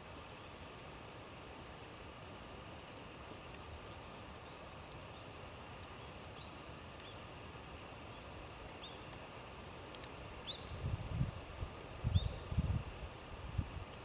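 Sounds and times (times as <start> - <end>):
small bird chirping: 4.3 - 9.2, 10.0 - 10.8, 12.0 - 12.6
faint sharp clicks: 4.7 - 7.3, 9.9 - 10.3.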